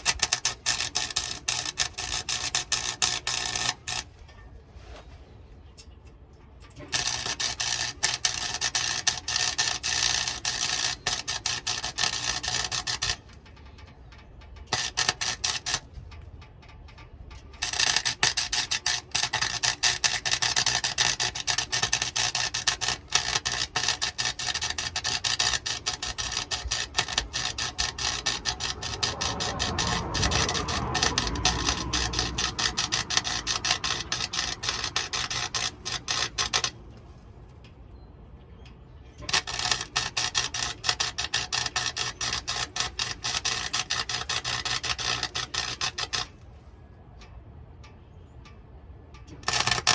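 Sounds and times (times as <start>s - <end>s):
electric welding arc crackling: 0.0s - 4.1s, 6.9s - 13.3s, 14.7s - 16.0s, 17.6s - 36.8s, 39.2s - 46.3s, 49.4s - 49.9s.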